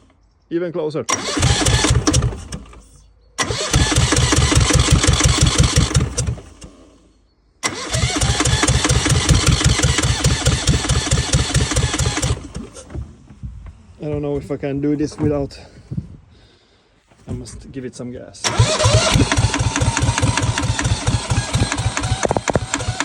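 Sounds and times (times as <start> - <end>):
diesel engine cranking: 1.1 - 13.4, 18.4 - 23.0.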